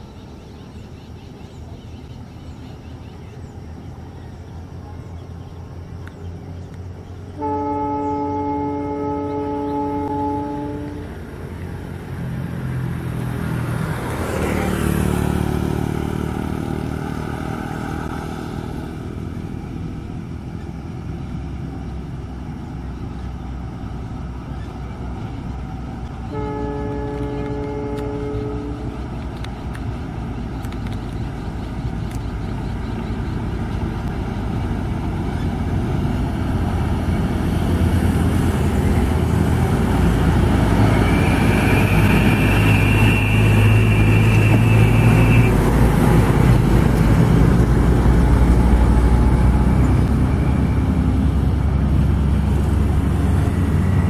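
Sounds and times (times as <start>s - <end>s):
distant train rumbling: 0.0s - 54.0s
locomotive horn blast: 7.4s - 11.2s, 26.3s - 29.0s, 40.4s - 46.5s.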